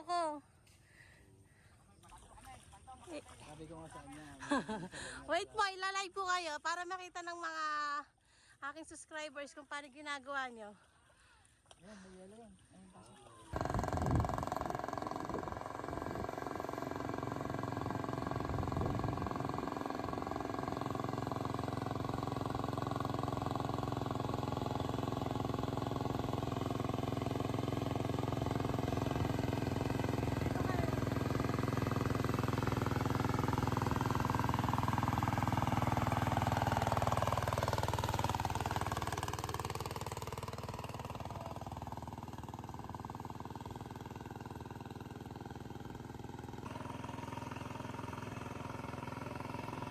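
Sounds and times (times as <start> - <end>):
small engine running: 12.0 - 49.9.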